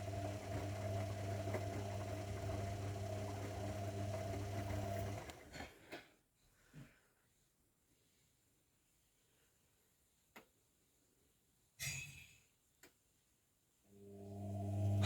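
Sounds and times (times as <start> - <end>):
washing machine humming: 0.0 - 5.6, 14.0 - 15.0.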